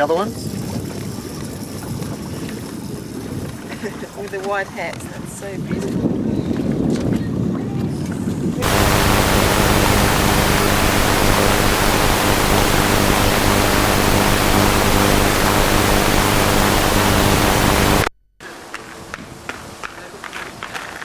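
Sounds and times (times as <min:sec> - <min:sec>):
buzzing hum: 0:08.6 - 0:18.1
videotape static hiss: 0:08.6 - 0:18.1.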